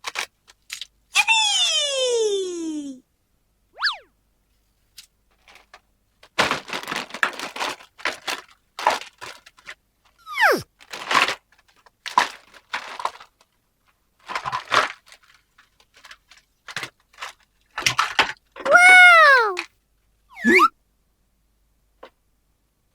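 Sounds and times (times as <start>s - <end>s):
whistle falling in pitch: 3.8s - 4.1s, 20.4s - 20.7s
plastic packaging crinkling and tearing: 6.4s - 9.7s, 10.8s - 13.4s.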